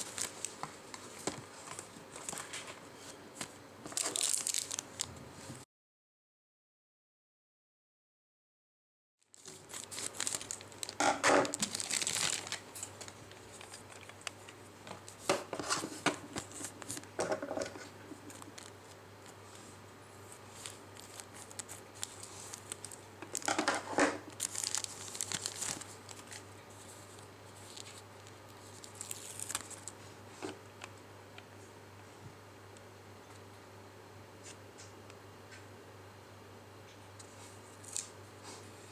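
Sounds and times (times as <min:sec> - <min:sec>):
wrapping crinkling and rustling: 0:00.0 - 0:05.6, 0:09.2 - 0:30.6, 0:37.2 - 0:38.9.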